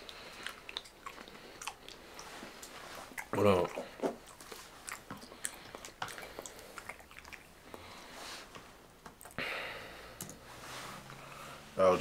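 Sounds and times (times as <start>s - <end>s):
person chewing soggy food: 0.0s - 8.6s.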